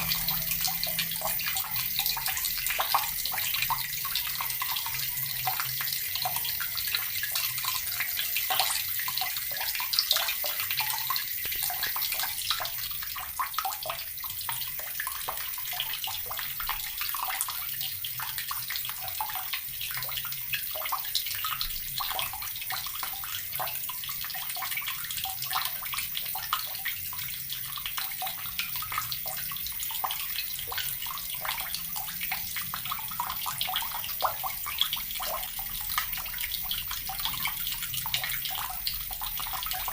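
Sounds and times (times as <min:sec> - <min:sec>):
tap water splashing: 0:08.5 - 0:17.5.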